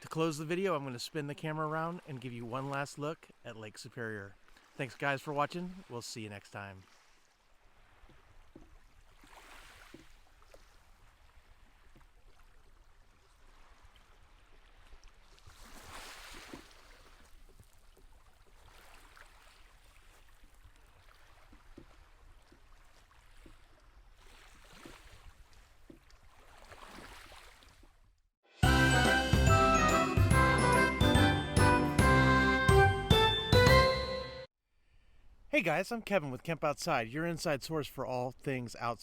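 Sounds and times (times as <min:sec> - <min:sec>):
small waves washing onto shore: 0:06.6 - 0:27.9.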